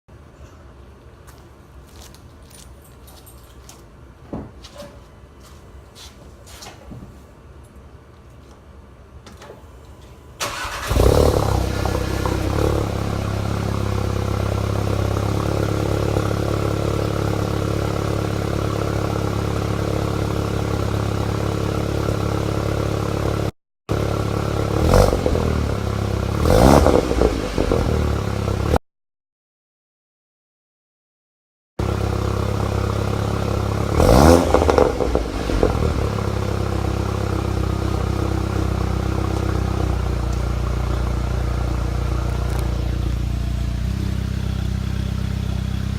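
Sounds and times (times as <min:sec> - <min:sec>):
engine revving: 0:10.4 - 0:18.0, 0:24.6 - 0:28.8, 0:31.8 - 0:45.9
car engine starting and idling: 0:10.4 - 0:28.7, 0:31.8 - 0:45.9.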